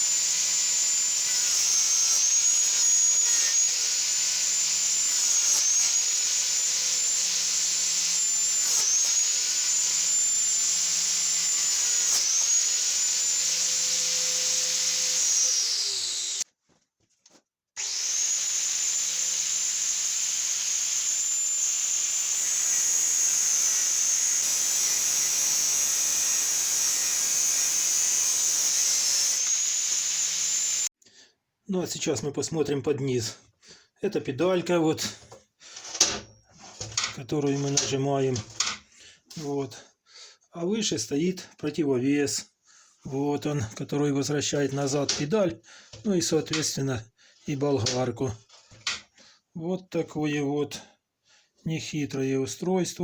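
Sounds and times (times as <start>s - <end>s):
angle grinder whining: 0.0s - 16.5s, 17.8s - 30.9s.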